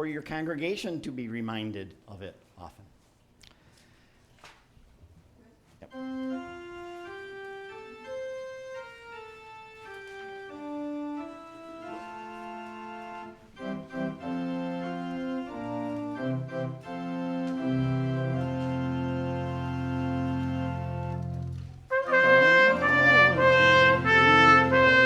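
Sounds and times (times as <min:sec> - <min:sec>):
church organ playing: 0:05.8 - 0:25.0.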